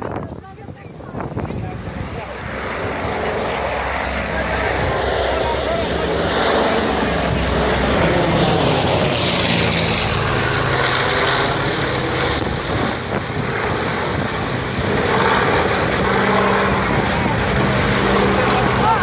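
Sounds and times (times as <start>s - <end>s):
propeller aircraft engine drone: 0.0s - 19.0s
rushing air noise: 1.0s - 19.0s.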